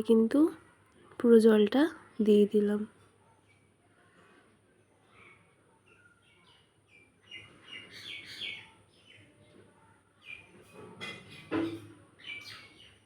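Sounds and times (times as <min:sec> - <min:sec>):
small birds chirping: 0:05.0 - 0:13.0.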